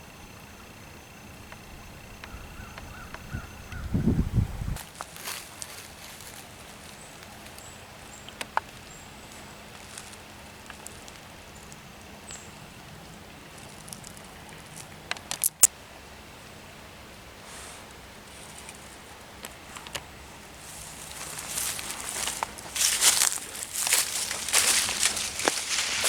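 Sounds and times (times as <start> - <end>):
faint ticks and crackles: 0.0 - 3.9, 4.8 - 15.7, 17.5 - 26.0
sharp clicks: 15.1 - 15.7.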